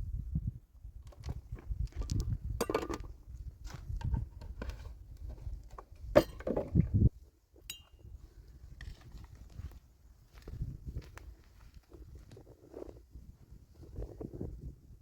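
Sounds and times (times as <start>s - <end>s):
ringing clink of dishes: 6.2s - 6.5s, 7.7s - 8.0s
dishes clinking and knocking: 6.2s - 6.6s.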